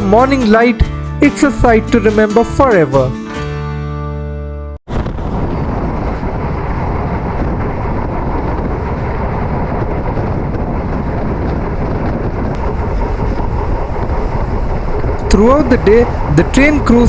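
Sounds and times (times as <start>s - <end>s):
train rumbling and rattling: 4.9s - 17.0s.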